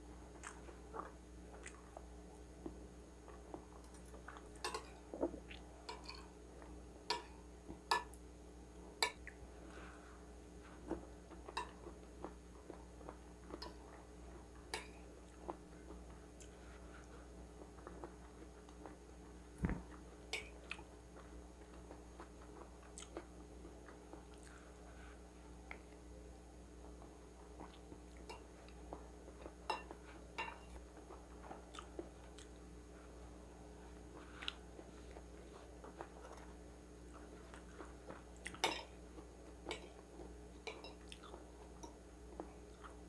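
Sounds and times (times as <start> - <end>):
faint hum: 0.0 - 43.0
chewing and mouth sounds: 0.3 - 6.2, 19.6 - 24.8, 27.5 - 32.7, 33.9 - 43.0.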